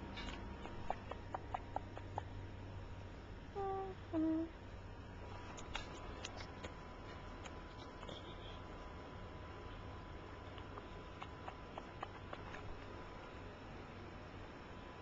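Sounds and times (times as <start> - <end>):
person humming notes: 3.5 - 4.6.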